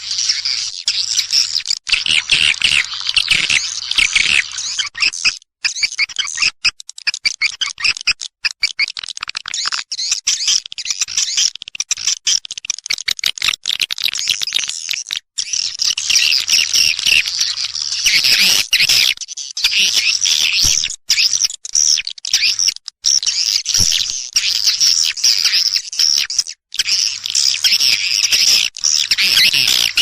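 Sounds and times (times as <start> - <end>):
high twittering chatter of birds: 0.0 - 5.1, 15.4 - 30.0.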